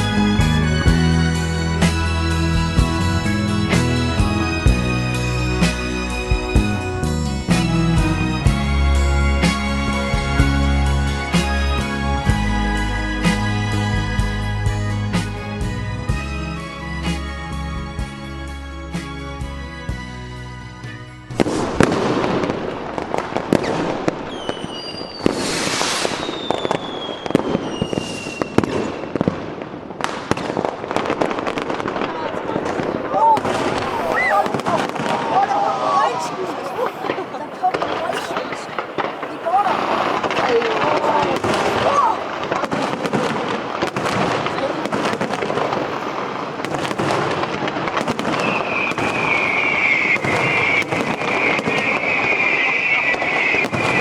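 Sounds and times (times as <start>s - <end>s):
fireworks crackling and banging: 21.4s - 54.0s
whistling rockets: 21.4s - 54.0s.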